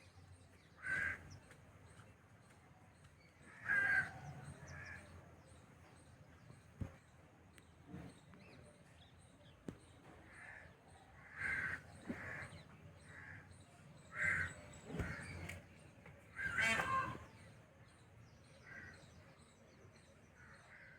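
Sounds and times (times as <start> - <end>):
crows cawing: 0.8 - 1.3, 3.5 - 4.2, 11.2 - 13.4, 14.1 - 15.4, 16.3 - 17.3.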